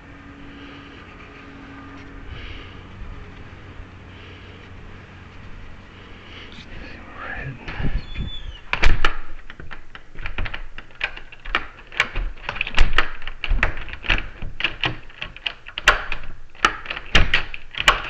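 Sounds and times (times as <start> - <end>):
metal door hardware clicking: 8.6 - 18.0.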